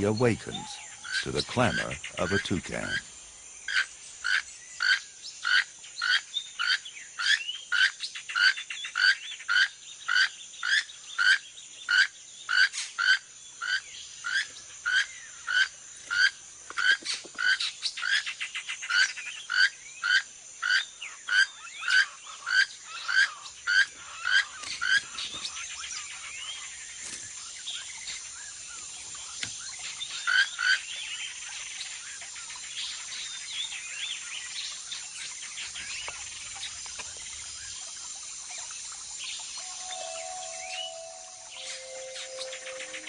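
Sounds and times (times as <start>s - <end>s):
toucan rasping calls: 0.0s - 3.1s, 39.5s - 43.0s
high-pitched insect drone: 36.7s - 43.0s.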